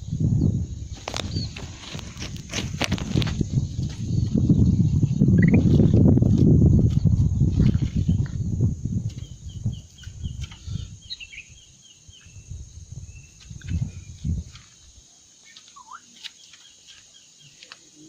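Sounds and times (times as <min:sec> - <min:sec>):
bulbul chirping: 0:05.4 - 0:05.6.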